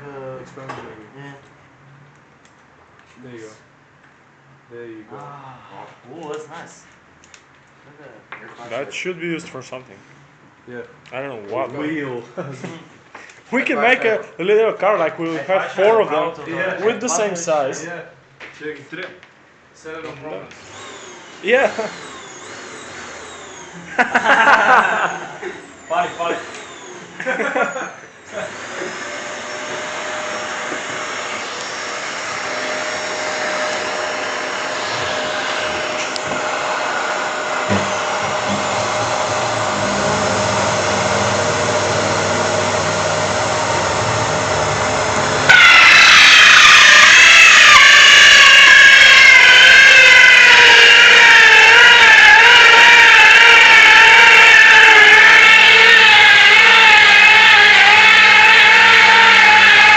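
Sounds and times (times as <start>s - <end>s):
electric drill running: 20.6s - 27.4s, 28.2s - 59.9s.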